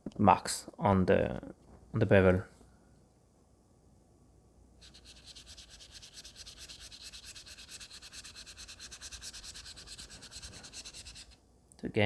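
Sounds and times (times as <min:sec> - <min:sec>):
razor blade rubbing on whetstone: 0:04.8 - 0:11.4.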